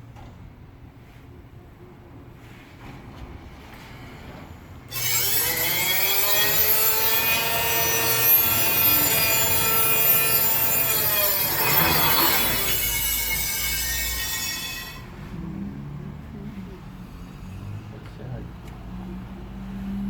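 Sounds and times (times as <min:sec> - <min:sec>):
motor whine: 0:05.0 - 0:13.8.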